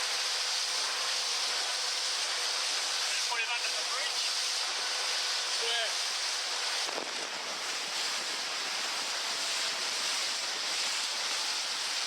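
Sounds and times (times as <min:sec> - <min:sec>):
water spray: 0:00.0 - 0:12.0
wind buffeting microphone: 0:06.8 - 0:10.9.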